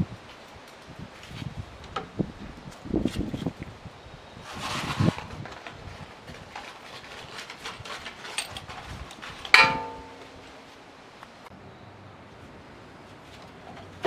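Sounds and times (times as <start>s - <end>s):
handling clicks and rustles: 4.6s - 11.5s
metal clang ringing: 9.5s - 10.4s.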